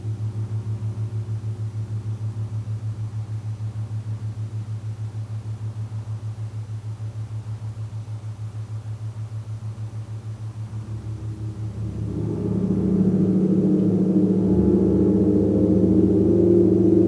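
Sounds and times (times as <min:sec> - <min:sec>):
gong pulsing drone: 0:10.4 - 0:17.0.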